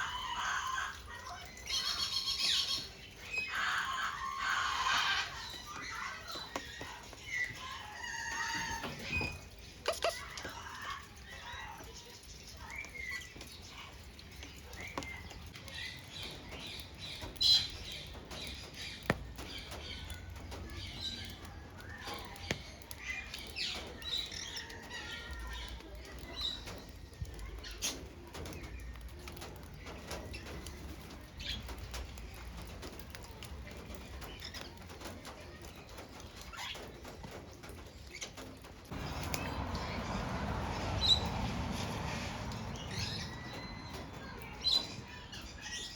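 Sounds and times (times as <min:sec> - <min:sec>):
wings fluttering: 0:26.4 - 0:45.9
parrots chirping: 0:38.9 - 0:45.9.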